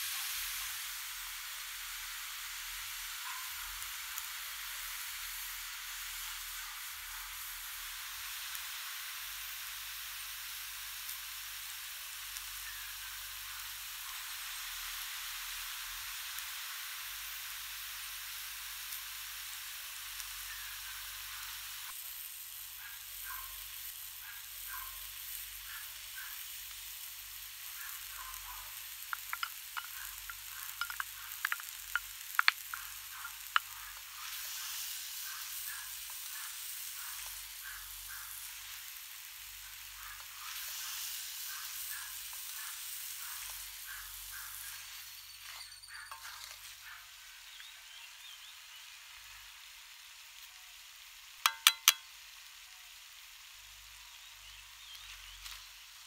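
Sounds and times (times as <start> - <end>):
food sizzling in wok: 0.0 - 56.0.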